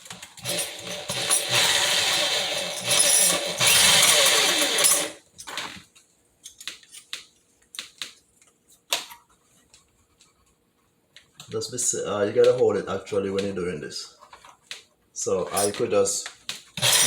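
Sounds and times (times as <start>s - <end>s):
power drill boring: 0.4s - 5.2s, 16.8s - 17.0s.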